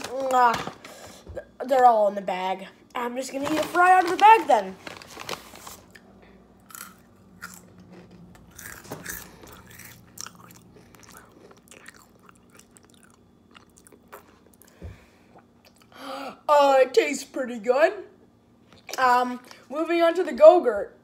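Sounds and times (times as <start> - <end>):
faint chewing: 5.8 - 14.8.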